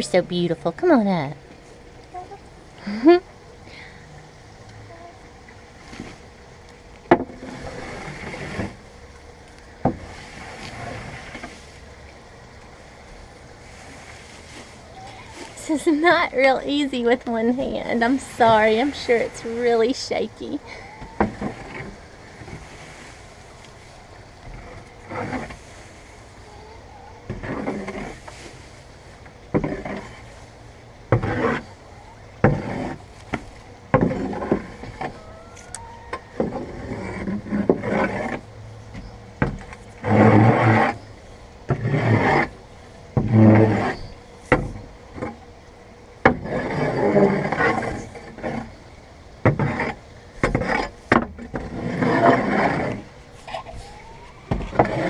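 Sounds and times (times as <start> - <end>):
hoe scraping hay: 7.3 - 12.0, 13.0 - 38.9, 39.7 - 44.9, 46.2 - 55.0.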